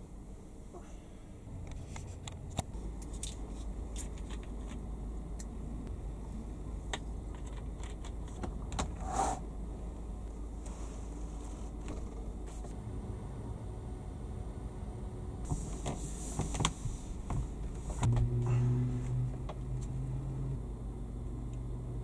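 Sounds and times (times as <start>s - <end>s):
low steady hum: 0.0s - 22.0s
light clicks and rattles: 1.6s - 5.5s, 6.9s - 9.0s
short rustling scrape: 9.0s - 9.4s, 10.6s - 11.8s, 15.5s - 18.1s.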